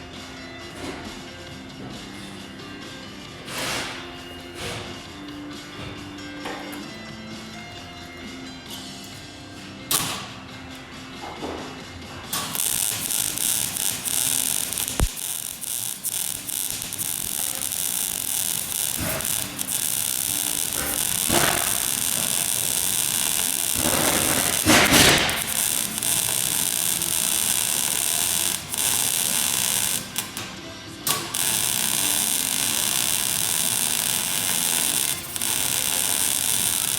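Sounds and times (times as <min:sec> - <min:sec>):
welding arc crackling and hissing: 0:12.4 - 0:36.9.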